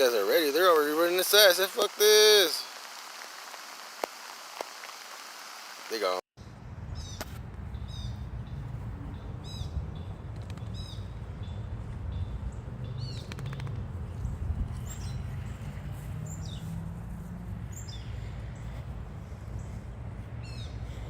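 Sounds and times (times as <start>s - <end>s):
small birds chirping: 6.9s - 16.8s, 17.6s - 21.0s.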